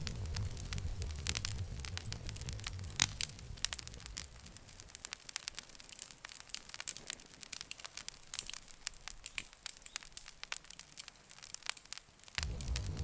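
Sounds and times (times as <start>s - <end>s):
campfire crackling and popping: 0.0s - 13.0s
faint hiss: 0.0s - 13.0s.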